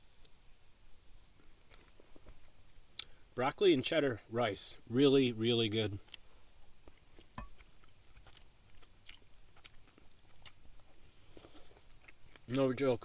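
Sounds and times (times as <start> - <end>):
person chewing: 1.4 - 3.2, 6.0 - 12.8
small mouth clicks and smacks: 1.4 - 3.2, 6.0 - 12.7.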